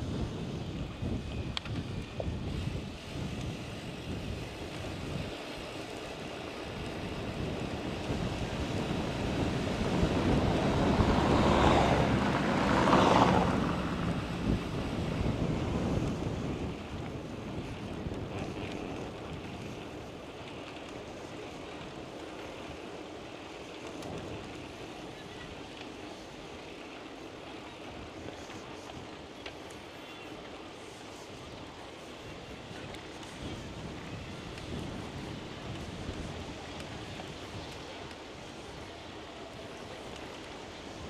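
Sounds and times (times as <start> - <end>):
wind buffeting microphone: 0.0 - 41.0
motor vehicle passing: 8.2 - 16.5.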